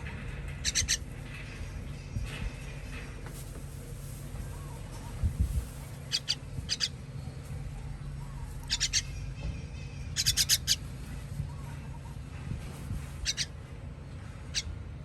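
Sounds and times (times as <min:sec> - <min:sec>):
baby bird begging chirps: 0:00.6 - 0:01.0, 0:06.0 - 0:07.0, 0:08.6 - 0:10.9, 0:13.2 - 0:13.6.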